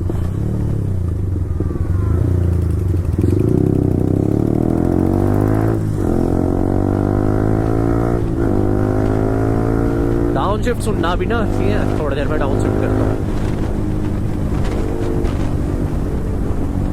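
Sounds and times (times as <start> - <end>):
motorcycle engine accelerating: 0.0 - 16.9.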